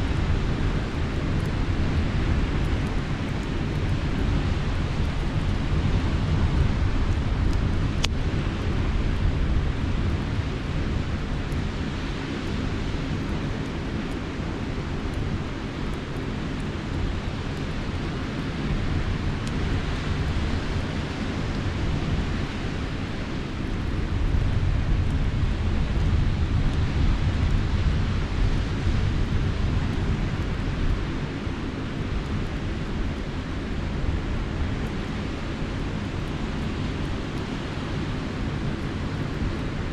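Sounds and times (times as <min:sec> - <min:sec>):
wind: 0:00.0 - 0:39.9
campfire pops: 0:06.4 - 0:09.3.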